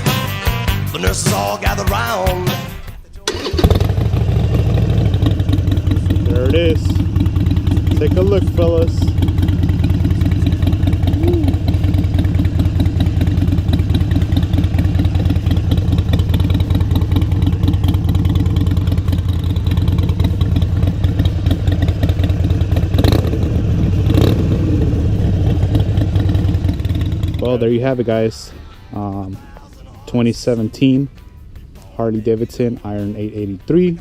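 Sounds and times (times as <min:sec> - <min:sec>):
motorcycle engine idling: 0:03.3 - 0:34.0.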